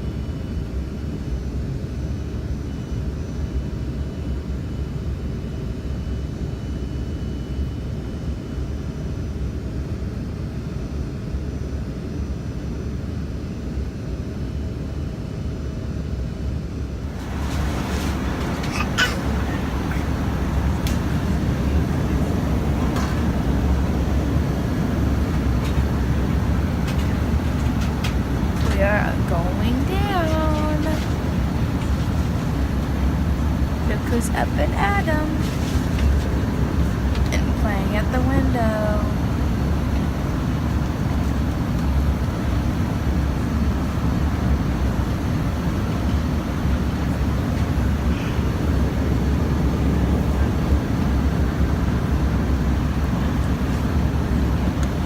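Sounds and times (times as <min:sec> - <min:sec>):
airliner engines rumbling: 0:00.0 - 0:55.0
rushing air: 0:17.1 - 0:28.6.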